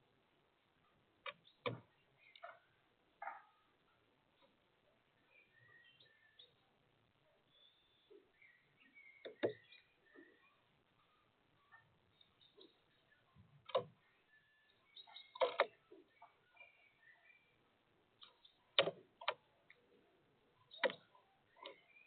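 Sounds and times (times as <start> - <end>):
woodpecker tapping: 8.4 - 9.9, 15.0 - 16.3, 20.7 - 22.0.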